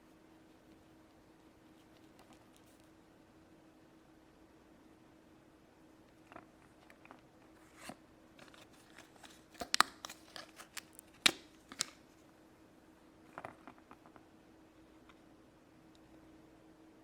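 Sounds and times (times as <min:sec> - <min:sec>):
faint steady hum: 0:00.0 - 0:17.0
packaging crinkling: 0:07.7 - 0:12.1.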